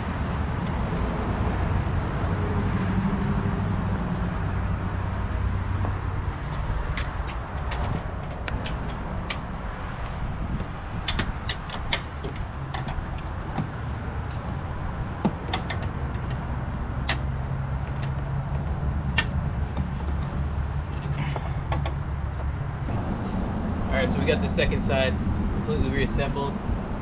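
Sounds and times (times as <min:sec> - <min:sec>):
hand tools clicking and knocking: 0:06.9 - 0:14.5, 0:15.1 - 0:16.4, 0:17.0 - 0:22.6.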